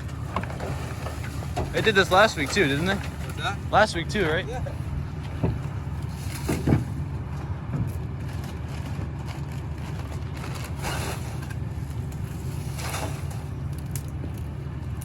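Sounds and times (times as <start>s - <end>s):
garbage truck engine rumbling: 0.0s - 15.0s.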